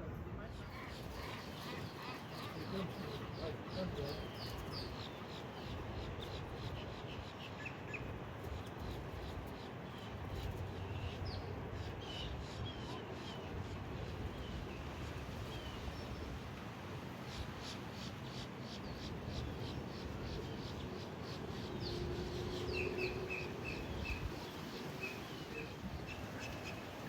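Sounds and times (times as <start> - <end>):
small birds chirping: 0.6 - 13.5.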